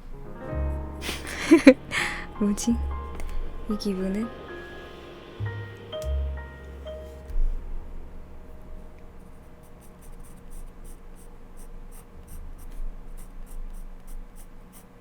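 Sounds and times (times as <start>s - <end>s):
drawing tool strokes on paper: 9.1s - 15.0s.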